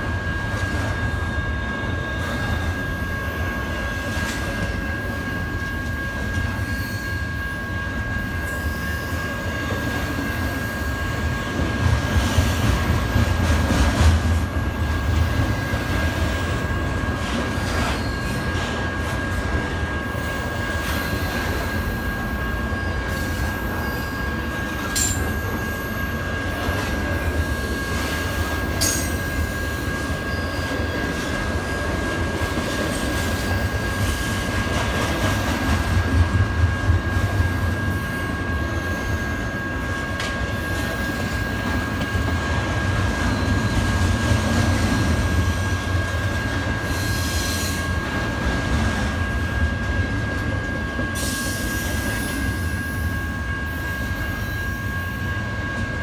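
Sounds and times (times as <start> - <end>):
train wheels rumbling on rail: 0.0 - 56.0
high-pitched wheel squeal: 6.6 - 9.4.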